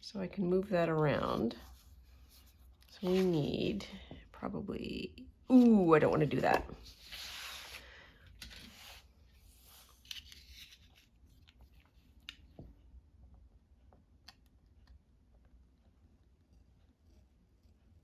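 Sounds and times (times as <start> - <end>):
paper scratching and rustling: 1.4 - 3.8, 5.5 - 7.8, 8.4 - 11.4.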